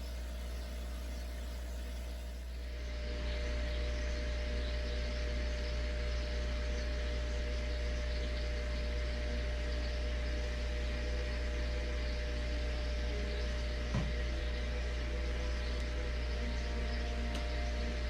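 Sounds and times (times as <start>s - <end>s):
mechanical hum with low drone: 0.0s - 18.0s
brief knock: 13.9s - 14.2s.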